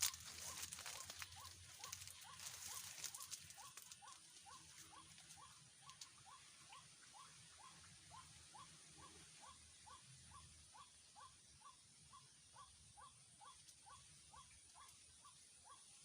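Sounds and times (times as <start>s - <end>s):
light crackling rustle: 0.0s - 6.2s.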